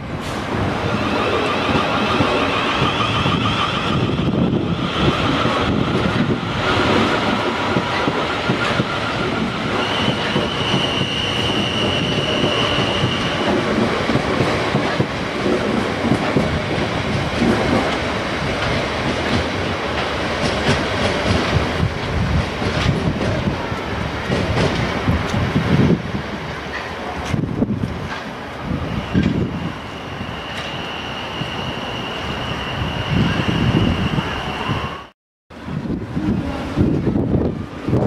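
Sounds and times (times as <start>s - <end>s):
train wheels rumbling and clacking: 0.0s - 38.0s
high steady squeal: 0.9s - 6.5s, 7.6s - 13.5s, 28.7s - 35.1s.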